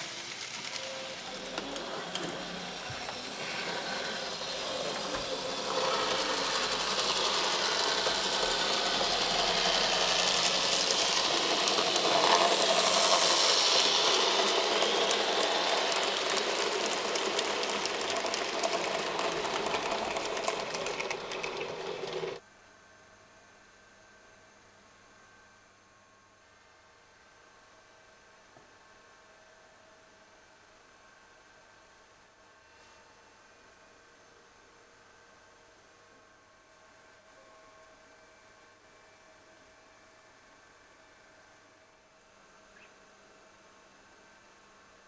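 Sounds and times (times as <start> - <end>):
model train motor whirring: 0.0 - 22.4
model train wheels rattling: 0.0 - 22.4.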